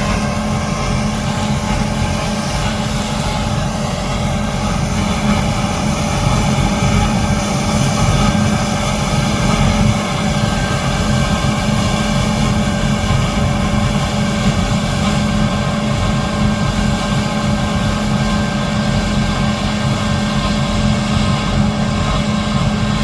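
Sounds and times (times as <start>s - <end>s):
diesel machinery engine drone: 0.0s - 23.0s
mechanical whine: 0.0s - 23.0s.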